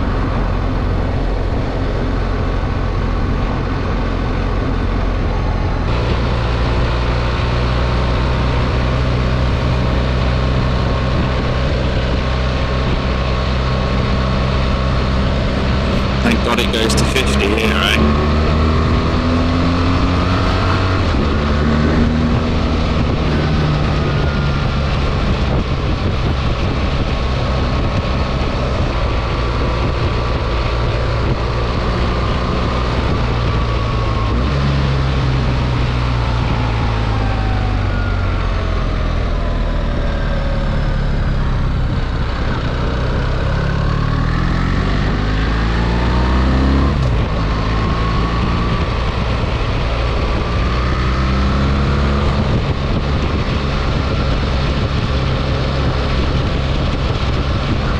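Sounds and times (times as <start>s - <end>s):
motorcycle engine running: 18.0s - 26.8s.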